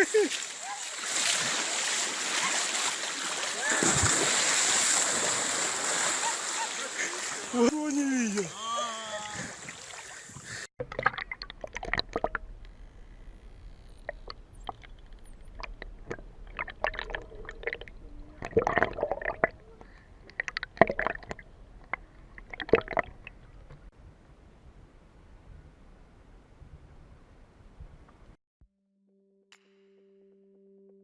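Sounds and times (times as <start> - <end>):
water bubbling and sloshing: 0.4 - 7.5, 9.3 - 23.9
crackling clicks: 11.2 - 17.3.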